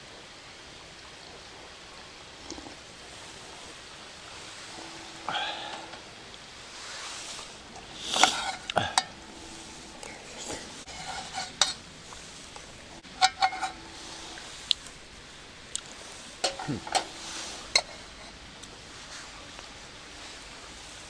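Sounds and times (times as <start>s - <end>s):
faint sizzle: 0.0s - 21.0s
utensils clinking on metal cookware: 7.7s - 14.6s, 16.0s - 18.3s.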